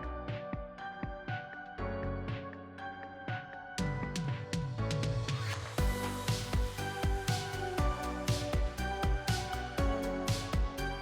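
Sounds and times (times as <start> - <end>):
background music with sustained notes: 0.0 - 11.0
low drum beat: 5.8 - 10.8.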